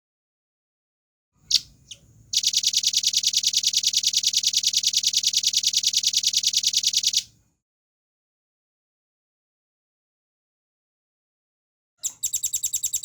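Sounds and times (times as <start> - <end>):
bird chirping and trilling: 1.4 - 7.3, 12.0 - 13.0.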